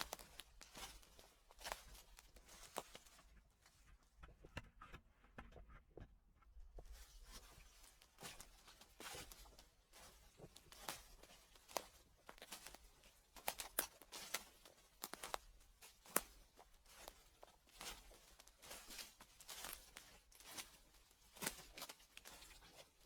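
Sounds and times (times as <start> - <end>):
footsteps on dry leaves: 0.0 - 3.2, 7.8 - 22.9.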